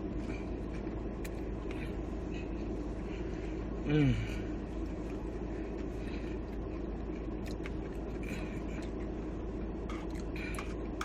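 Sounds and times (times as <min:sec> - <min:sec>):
low background hum: 0:00.0 - 0:11.0
food being chewed: 0:04.8 - 0:09.2, 0:09.8 - 0:11.0.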